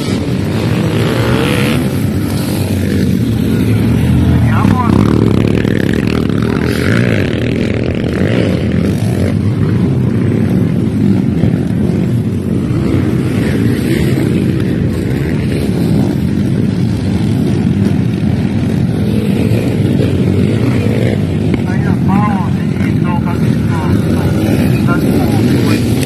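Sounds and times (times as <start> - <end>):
dirt bike engines rumbling: 0.0 - 26.0.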